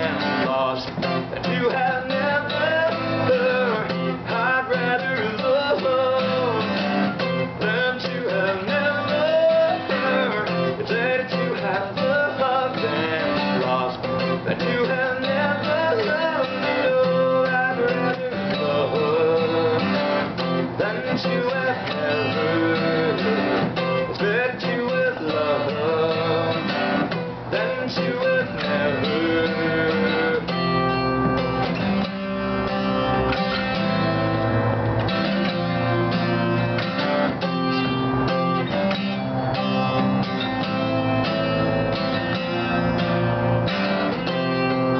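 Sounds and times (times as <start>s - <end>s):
person singing: 0.0s - 31.8s
acoustic guitar strumming: 0.0s - 44.9s.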